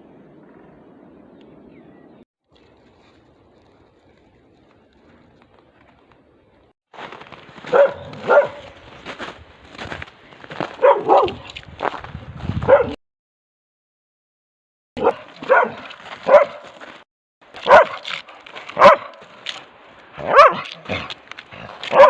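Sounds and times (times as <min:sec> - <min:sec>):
dog barking: 0:07.6 - 0:08.8, 0:10.7 - 0:11.5, 0:12.6 - 0:13.0, 0:15.0 - 0:16.8, 0:17.6 - 0:18.2, 0:18.8 - 0:19.2, 0:20.2 - 0:22.0.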